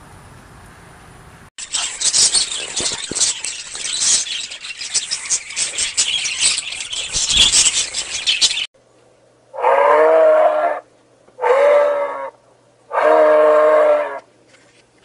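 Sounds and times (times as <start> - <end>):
flock of birds chattering: 1.6 - 8.7.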